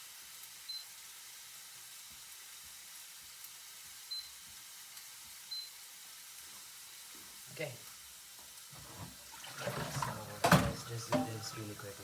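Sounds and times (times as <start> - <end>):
food sizzling in a frying pan: 0.0 - 9.3.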